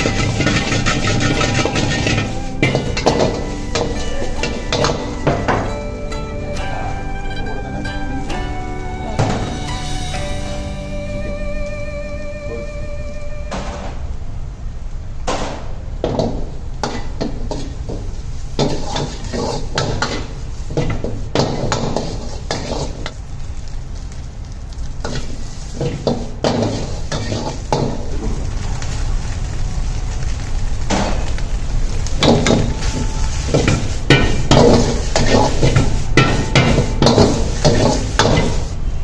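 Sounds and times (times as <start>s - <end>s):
metal spatula scraping pan: 0.0s - 5.3s, 18.6s - 23.1s, 25.1s - 27.7s, 32.2s - 38.7s
food sizzling: 0.0s - 14.3s, 16.2s - 39.0s
steady low rumble: 0.0s - 16.0s.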